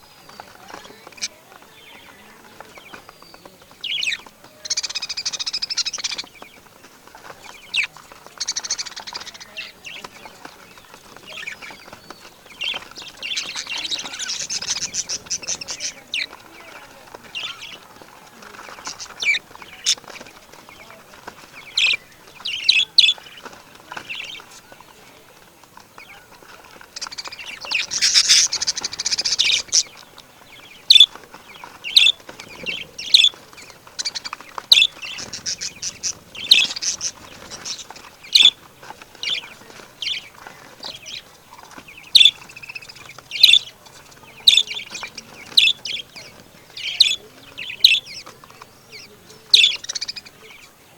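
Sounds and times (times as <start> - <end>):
birds chirping and calling: 0.0 - 50.9
harsh rasping bird call: 12.6 - 20.1, 26.9 - 29.9, 33.0 - 38.6.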